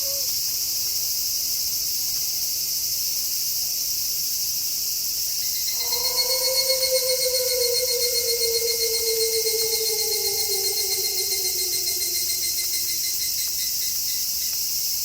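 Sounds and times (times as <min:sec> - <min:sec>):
crickets chirping: 0:00.0 - 0:15.0
wolf howling: 0:05.7 - 0:13.2.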